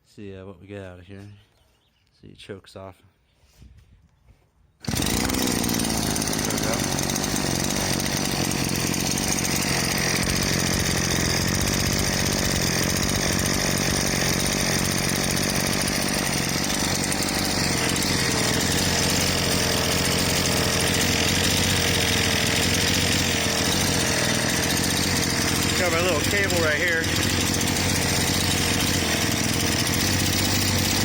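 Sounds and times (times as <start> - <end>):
unmuffled scooter engine running: 4.8 - 31.0.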